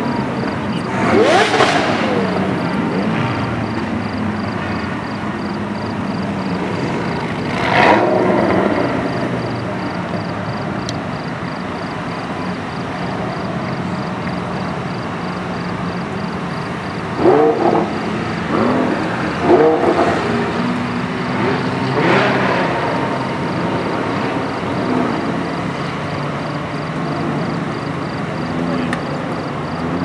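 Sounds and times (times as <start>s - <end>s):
engine revving: 0.0s - 30.0s
sports car engines driving past: 0.0s - 30.0s.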